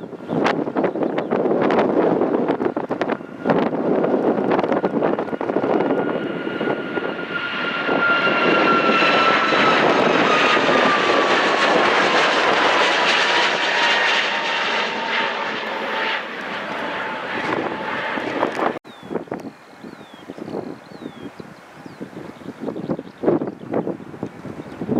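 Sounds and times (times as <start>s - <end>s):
jet airliner passing: 0.0s - 18.8s.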